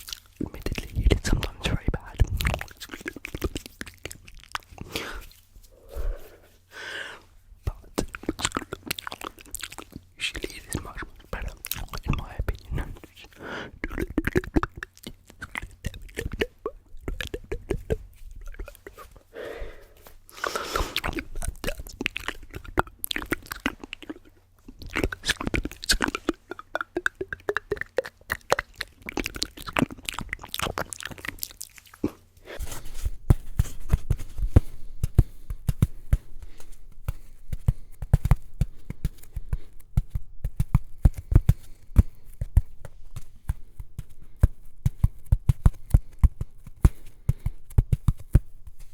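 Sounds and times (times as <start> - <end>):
wet mouth clicks and smacks: 0.0 - 4.8, 7.9 - 12.4, 21.0 - 32.1
rapid heavy tapping: 32.6 - 48.9.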